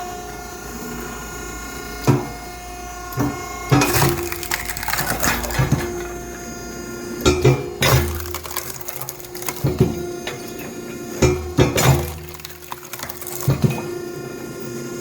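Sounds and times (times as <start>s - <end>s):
log splitter humming: 0.4s - 14.7s
wood cracking and splitting: 3.8s - 6.5s, 7.8s - 14.1s.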